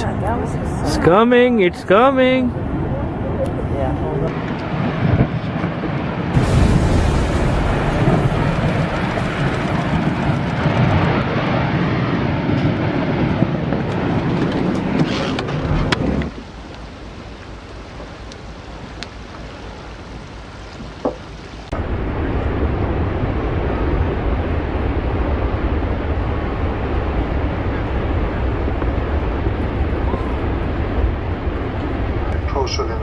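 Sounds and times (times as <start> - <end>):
wind buffeting microphone: 0.0 - 33.0
heavy rumble: 2.4 - 33.0
rushing water: 4.3 - 12.0, 13.9 - 21.8
glacier ice crashing into sea: 4.3 - 15.0.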